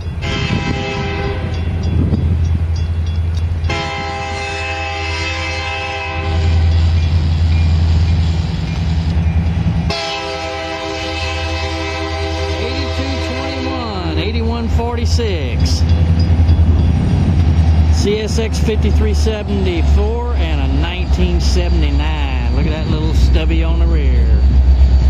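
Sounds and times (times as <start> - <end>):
locomotive engine rumble: 0.0 - 25.0
locomotive air horn chord: 0.2 - 1.7, 3.6 - 7.0, 9.9 - 14.1.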